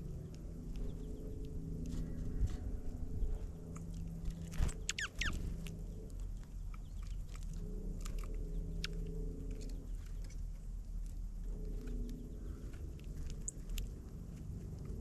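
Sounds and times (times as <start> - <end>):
birds pecking at seed: 0.0 - 15.0
steady low hum: 0.0 - 15.0
high bird chirps: 4.7 - 5.5.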